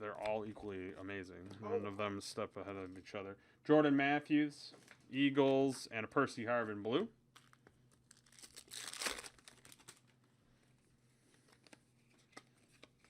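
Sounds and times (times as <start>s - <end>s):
foil wrapper crinkling: 7.4s - 10.1s
cards being handled: 11.2s - 13.0s.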